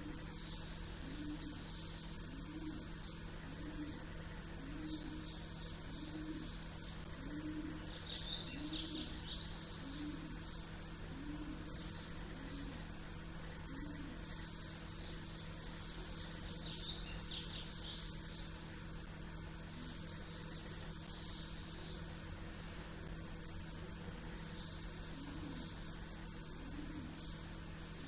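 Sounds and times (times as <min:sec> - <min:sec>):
short low bird calls: 0:00.0 - 0:18.4
faint steady hum: 0:00.0 - 0:28.0
small birds chirping: 0:00.0 - 0:28.0.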